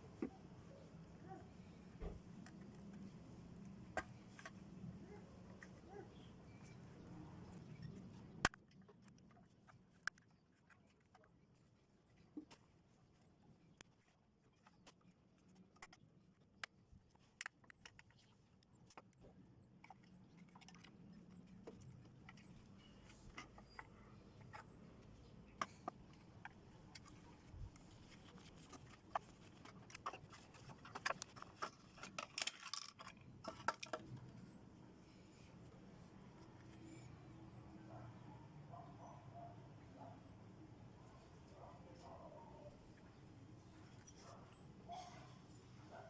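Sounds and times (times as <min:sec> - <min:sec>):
small metal parts clinking: 0:30.3 - 0:34.0.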